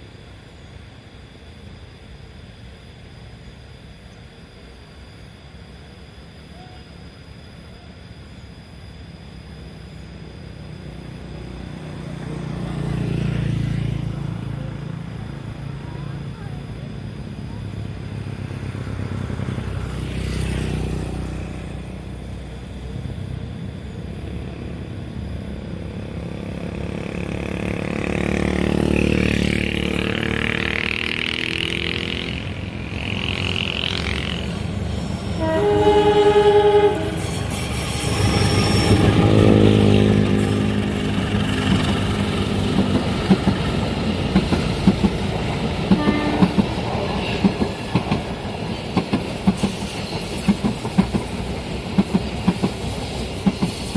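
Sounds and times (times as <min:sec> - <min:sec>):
locomotive engine rumbling: 0:21.0 - 0:53.9
wheels clacking over rail joints: 0:27.0 - 0:53.9
train horn: 0:31.6 - 0:42.2, 0:45.9 - 0:47.6.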